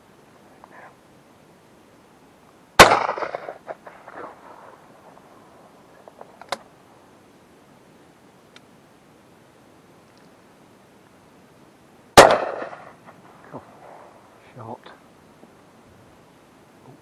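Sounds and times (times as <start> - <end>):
shotgun shot echoing: 2.8 - 4.7, 12.2 - 13.0
faint clicks: 8.5 - 8.7, 10.1 - 10.4.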